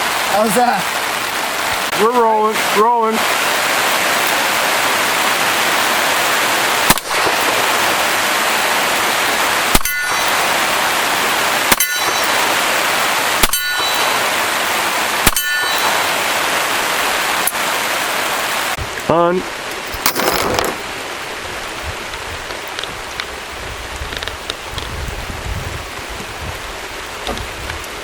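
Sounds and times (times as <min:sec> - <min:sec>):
rain hiss: 0:00.0 - 0:28.0
revolver gunshots: 0:06.8 - 0:08.1, 0:09.7 - 0:10.7, 0:11.7 - 0:12.7, 0:13.4 - 0:14.4, 0:15.2 - 0:16.2
steel target ringing: 0:06.9 - 0:07.8, 0:09.7 - 0:10.9, 0:11.7 - 0:14.6, 0:15.2 - 0:16.5.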